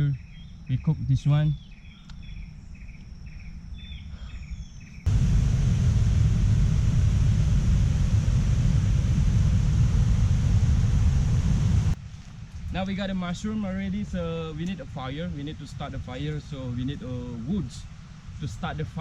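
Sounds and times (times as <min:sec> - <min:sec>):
insects chirping: 0:00.0 - 0:08.6
loud rushing noise with rumble: 0:05.1 - 0:12.0.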